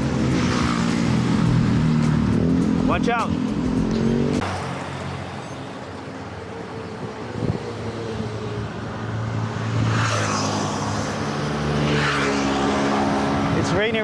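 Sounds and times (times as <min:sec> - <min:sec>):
motor vehicle engine hum: 0:00.0 - 0:07.0.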